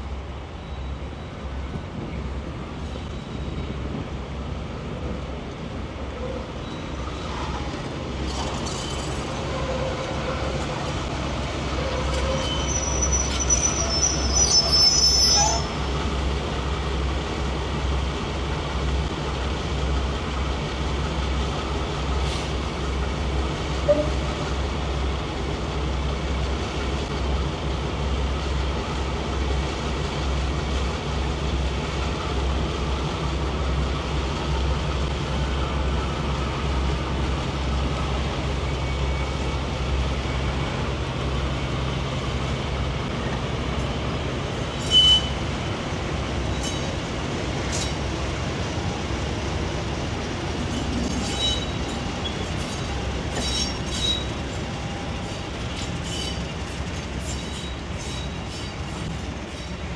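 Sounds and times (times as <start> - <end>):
wheel flanges squealing: 11.7 - 15.8, 44.7 - 45.5, 50.5 - 59.9.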